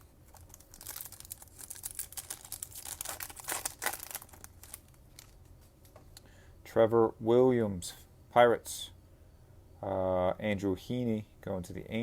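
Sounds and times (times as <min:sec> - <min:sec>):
wrapper crinkling and tearing: 0:00.2 - 0:05.5.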